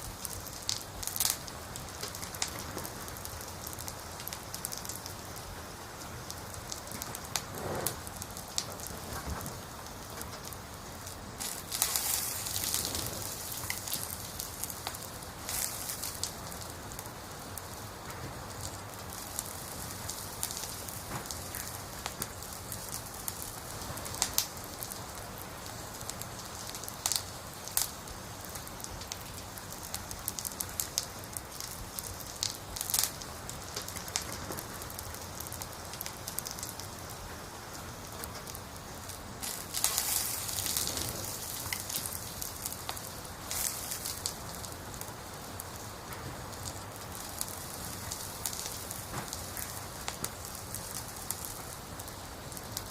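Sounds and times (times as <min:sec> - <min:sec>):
campfire crackling: 0:00.0 - 0:52.9
sharp pops of fire: 0:00.0 - 0:52.9.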